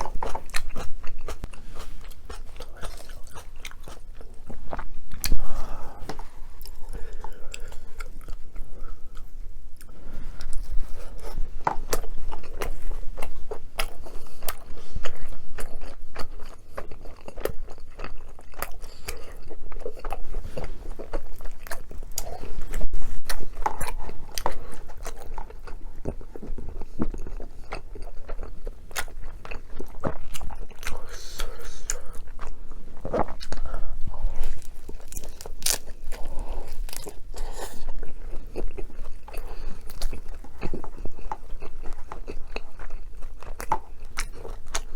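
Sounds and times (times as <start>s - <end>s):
crunchy chewing: 0.0s - 44.9s.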